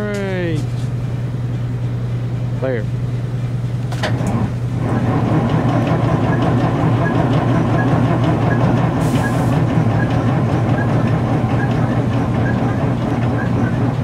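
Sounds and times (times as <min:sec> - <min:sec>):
starter cranking diesel engine: 0:04.0 - 0:14.0.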